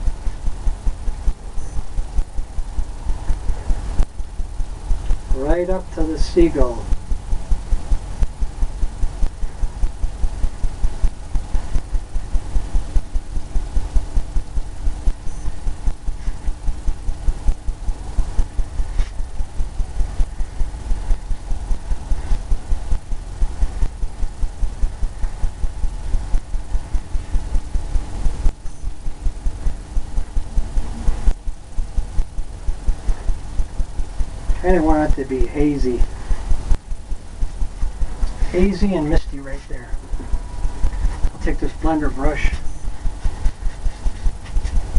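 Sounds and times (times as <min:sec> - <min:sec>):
paint brush scrubbing on canvas: 0:42.5 - 0:44.9.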